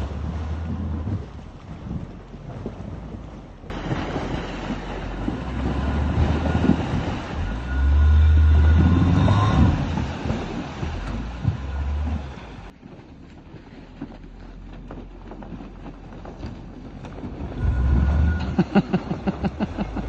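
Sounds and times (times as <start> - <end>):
rumbling noise: 0.0 - 20.0
atv engine drone: 2.6 - 12.7, 17.1 - 20.0.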